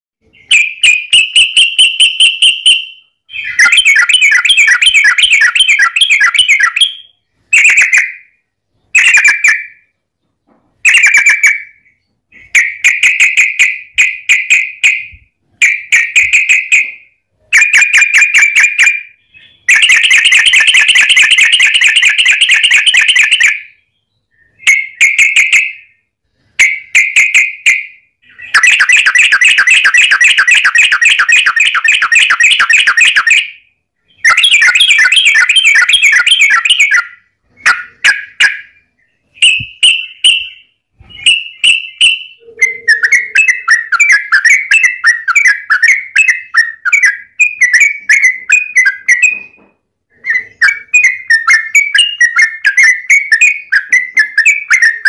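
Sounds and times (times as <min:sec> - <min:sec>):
bird chattering call: 0:41.2 - 0:49.6.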